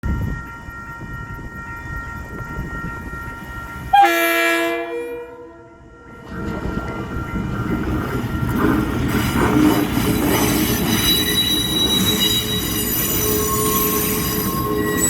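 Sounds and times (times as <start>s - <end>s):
train rumbling on rails: 0.0s - 15.0s
train horn blast: 3.9s - 6.1s.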